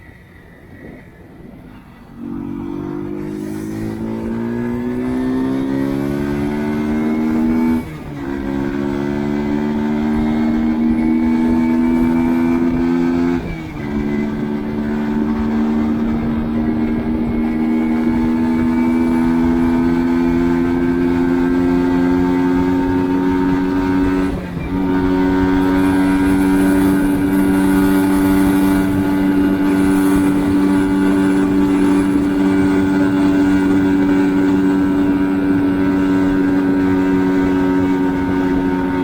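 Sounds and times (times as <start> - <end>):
small four-stroke engine accelerating: 0.7 - 39.0.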